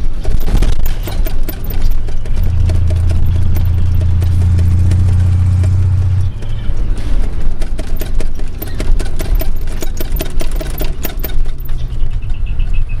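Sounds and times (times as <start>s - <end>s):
diesel truck engine clattering: 0.0s - 13.0s.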